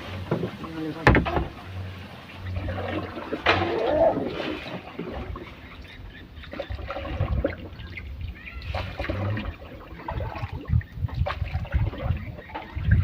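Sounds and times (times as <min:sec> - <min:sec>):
water splashing against boat: 0:00.0 - 0:13.0
wind buffeting microphone: 0:00.0 - 0:13.0
small knocks: 0:00.3 - 0:01.6.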